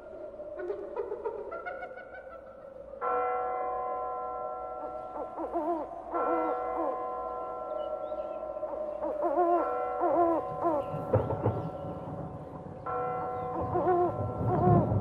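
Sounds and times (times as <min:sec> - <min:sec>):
owl hooting: 0:00.0 - 0:02.8, 0:05.1 - 0:07.0, 0:07.7 - 0:11.7, 0:13.5 - 0:14.9
deep bell tolling: 0:03.1 - 0:15.0.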